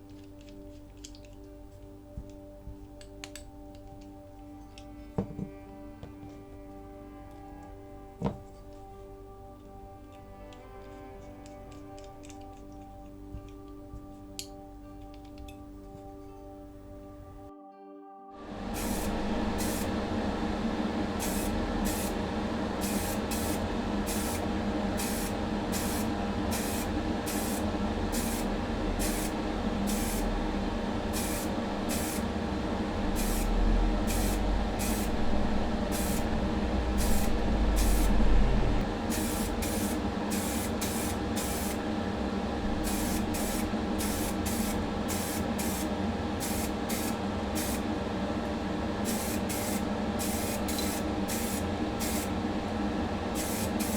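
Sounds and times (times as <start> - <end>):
motor humming: 18.5 - 53.9
spray can hissing bursts: 18.7 - 20.0, 21.2 - 22.2, 22.8 - 30.4, 31.1 - 32.3, 33.1 - 36.3, 36.9 - 38.2, 39.1 - 41.8, 42.8 - 47.9, 49.0 - 52.4, 53.3 - 53.9
low rumble: 27.7 - 39.0.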